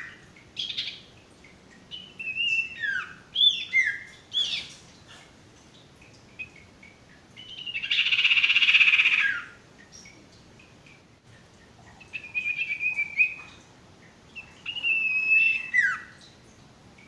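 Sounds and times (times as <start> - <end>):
bird whistled chirps: 2.0 - 4.7, 12.1 - 13.5, 14.4 - 16.2.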